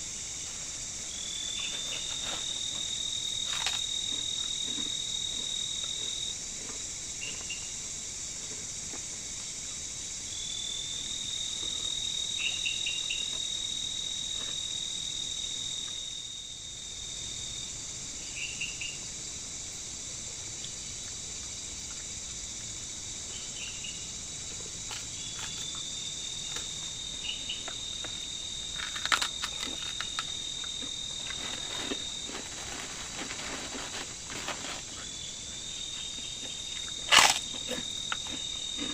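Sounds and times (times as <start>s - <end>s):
insect chirps: 0.0s - 38.9s
insects hissing: 0.0s - 38.9s
insect shrill trill: 34.8s - 38.9s.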